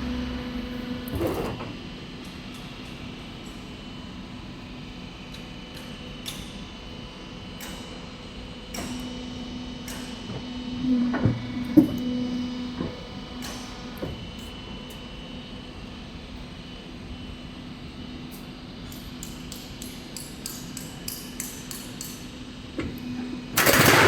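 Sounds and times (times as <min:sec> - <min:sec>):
machine humming: 0:00.0 - 0:01.5, 0:09.0 - 0:14.8, 0:22.8 - 0:24.0.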